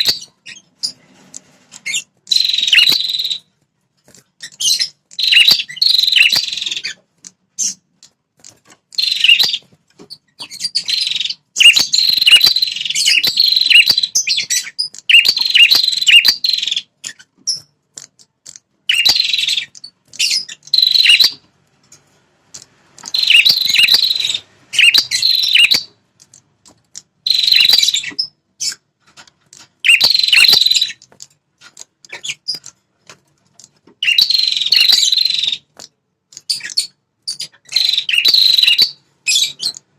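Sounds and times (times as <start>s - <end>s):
songbird high-pitched chattering song: 0.0s - 1.0s, 1.8s - 3.5s, 4.4s - 7.0s, 8.9s - 21.4s, 23.0s - 26.3s, 26.9s - 28.9s, 29.5s - 31.1s, 33.6s - 39.9s.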